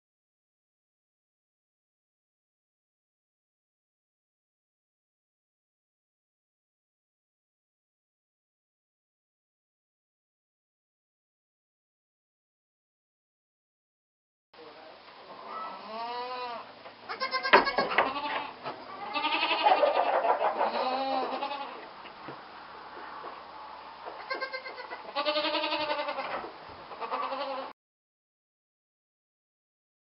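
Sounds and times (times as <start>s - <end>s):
goat kids bleating: 15.4s - 21.9s, 24.2s - 27.7s.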